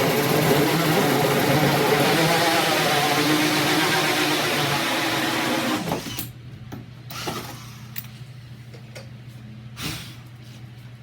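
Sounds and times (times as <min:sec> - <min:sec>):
electric drill with hole saw: 0:00.0 - 0:06.2.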